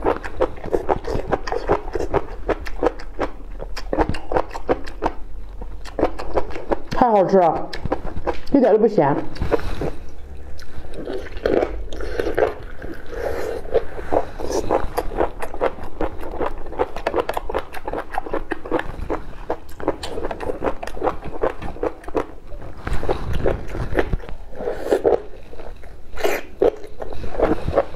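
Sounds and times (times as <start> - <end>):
sticky mouth clicks: 0.0 - 8.6, 10.5 - 22.3
wet chewing and lip-smacking: 0.0 - 27.9.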